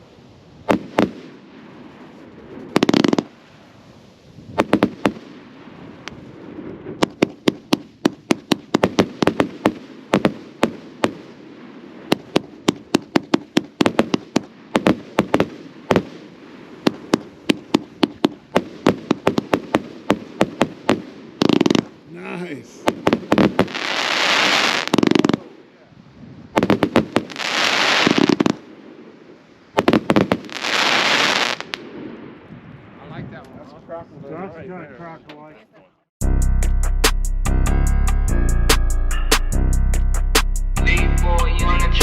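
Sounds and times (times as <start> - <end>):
firework cracks and bangs: 0.6 - 25.7, 26.5 - 32.5
fireworks booming: 0.6 - 32.9.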